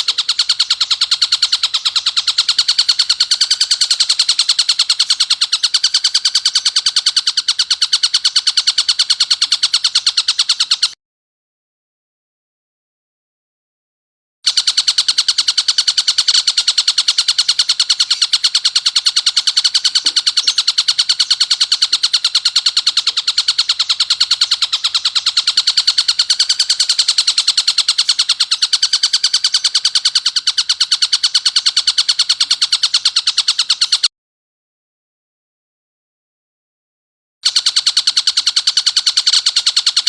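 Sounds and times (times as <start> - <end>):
kingfisher chattering call: 0.0 - 11.0, 14.5 - 34.1.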